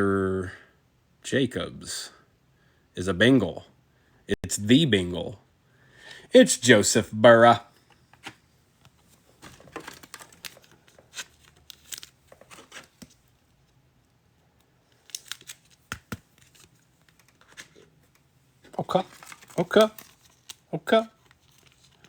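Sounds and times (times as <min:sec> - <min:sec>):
packaging crinkling and tearing: 0:09.4 - 0:13.3, 0:14.9 - 0:22.0.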